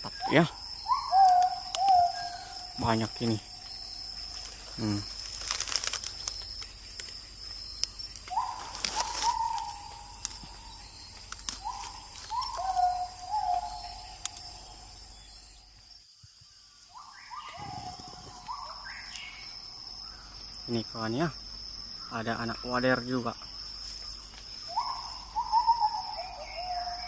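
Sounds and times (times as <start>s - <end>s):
bird calling falling notes: 0.0s - 3.8s, 8.3s - 14.6s
high-pitched insect drone: 0.0s - 27.0s
sharp clicks and crackles: 4.4s - 10.5s, 11.1s - 12.8s.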